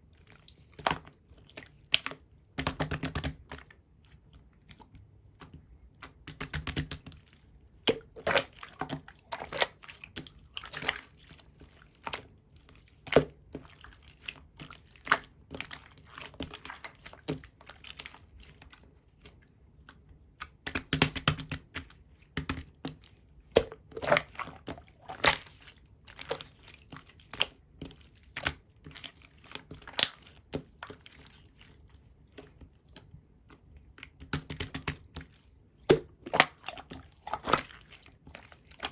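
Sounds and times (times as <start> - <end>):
slime squished by hand: 20.4 - 38.9.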